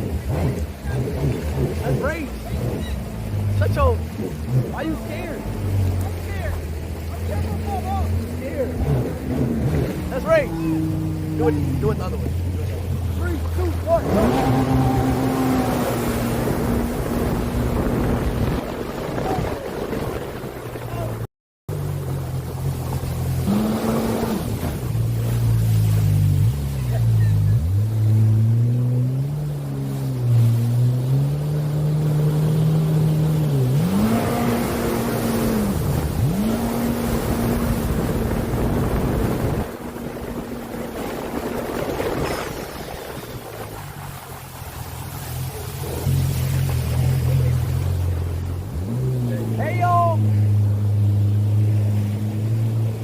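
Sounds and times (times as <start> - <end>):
jet ski engine running: 0.0 - 53.0
water rushing: 0.0 - 53.0
wind buffeting microphone: 8.8 - 21.2, 33.5 - 48.6.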